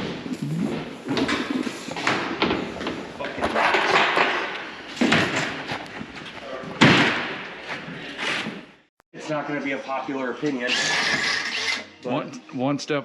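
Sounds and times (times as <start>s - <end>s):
loud knocks and bangs: 6.8s - 7.4s.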